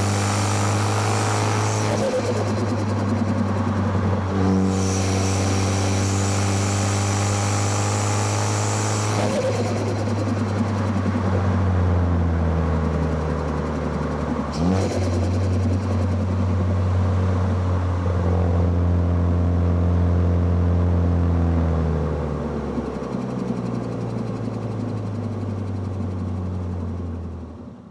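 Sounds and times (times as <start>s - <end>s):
car engine running: 0.0s - 18.5s
engine revving: 0.0s - 18.7s.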